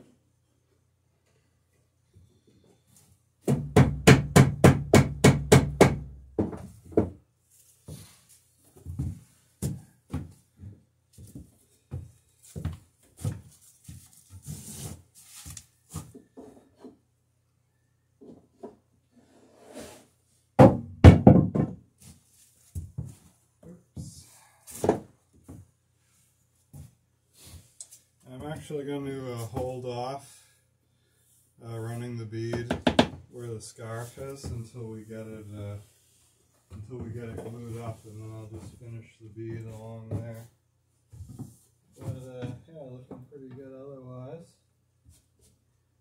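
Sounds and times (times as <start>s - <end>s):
scraping tool on wood: 19.1s - 20.1s.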